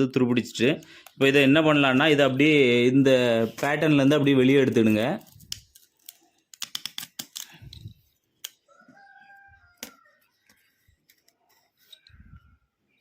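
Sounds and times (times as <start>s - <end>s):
small sharp clicks and scrapes: 5.3s - 8.6s, 9.8s - 12.4s
rooster crowing faintly: 8.7s - 10.5s.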